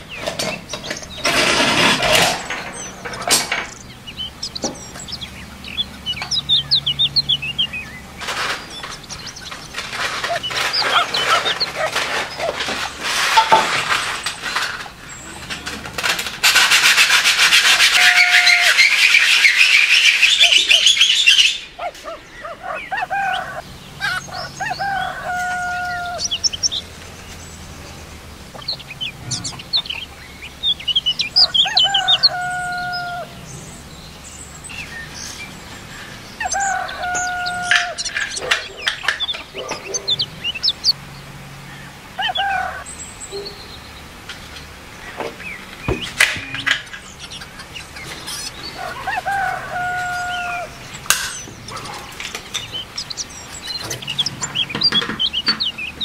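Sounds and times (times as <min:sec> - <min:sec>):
birds chirping: 0:00.0 - 0:56.0
sandpaper scratching metal: 0:08.2 - 0:21.0.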